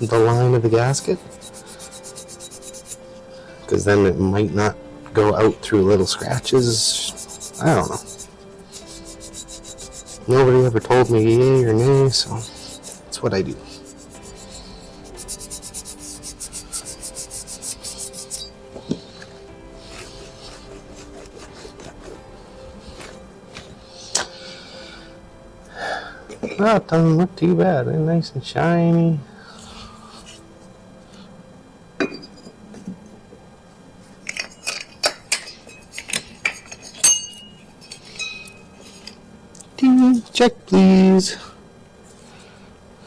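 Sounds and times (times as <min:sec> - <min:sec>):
scouring pad scrubbing metal: 0:00.0 - 0:03.0, 0:05.9 - 0:23.2
metal objects clinking: 0:34.2 - 0:39.2.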